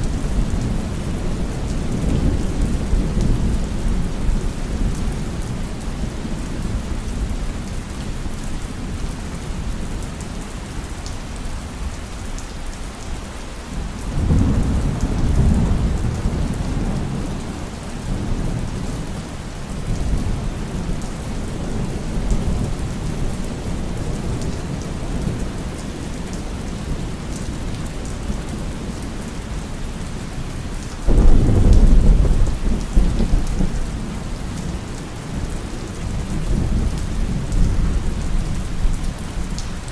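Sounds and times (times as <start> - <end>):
heavy rain: 0.0 - 39.9
sudden crack of thunder: 31.1 - 34.1
rolling thunder: 31.1 - 39.0.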